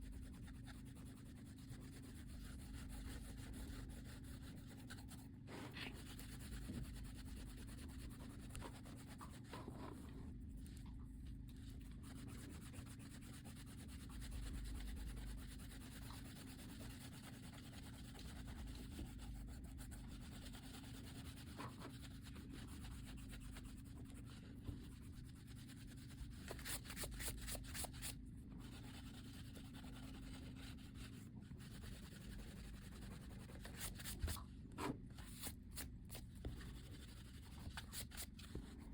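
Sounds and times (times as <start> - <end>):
pencil strokes rubbing on paper: 11.6 - 34.4.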